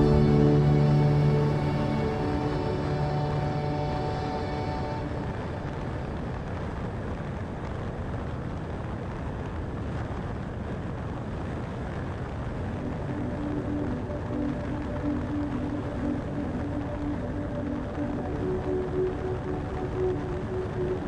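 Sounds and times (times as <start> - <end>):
background music: 0.0 - 6.6, 12.8 - 21.0.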